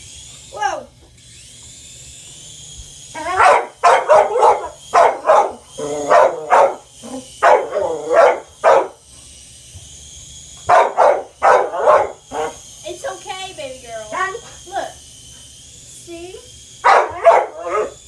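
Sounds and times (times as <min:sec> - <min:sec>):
dog barking rapidly: 0:03.3 - 0:09.0, 0:10.7 - 0:12.6, 0:16.8 - 0:18.0.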